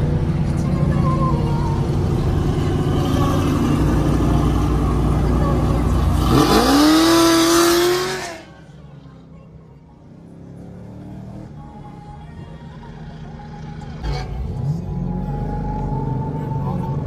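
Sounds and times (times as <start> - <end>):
car engine accelerating hard: 0.0 - 8.6.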